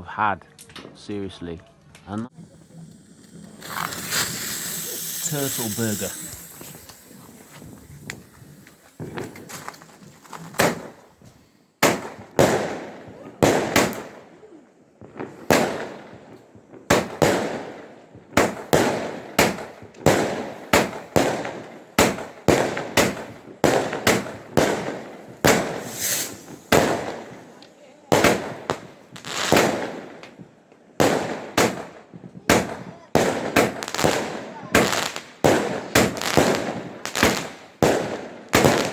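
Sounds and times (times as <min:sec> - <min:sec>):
quiet firework pops: 0:02.0 - 0:38.9
firework bangs: 0:02.3 - 0:38.9.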